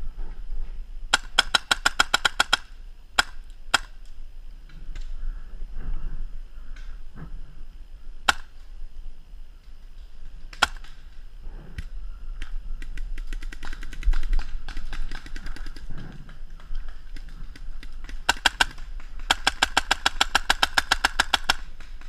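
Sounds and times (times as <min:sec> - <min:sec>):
paintball markers firing: 0:01.1 - 0:04.0, 0:08.2 - 0:08.6, 0:10.5 - 0:11.1, 0:12.4 - 0:22.0.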